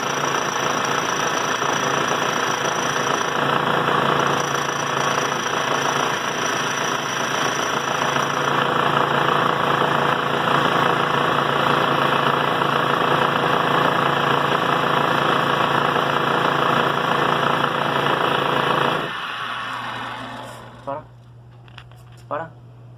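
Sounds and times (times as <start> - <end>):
cutting disc grinding steel chain: 0.0 - 21.0
faint high whine: 19.0 - 21.8.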